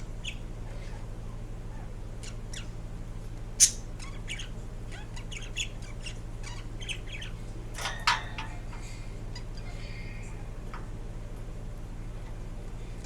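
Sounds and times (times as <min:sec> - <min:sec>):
steady low hum: 0:00.0 - 0:13.0
parakeet squawk: 0:01.7 - 0:02.7, 0:03.6 - 0:07.4
parakeet chirping and clicking: 0:03.6 - 0:09.7.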